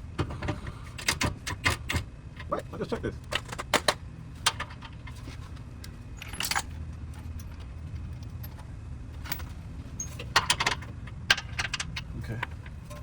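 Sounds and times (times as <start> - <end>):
steady low hum: 0.0 - 13.0
metallic clinks and jangle: 6.2 - 6.8.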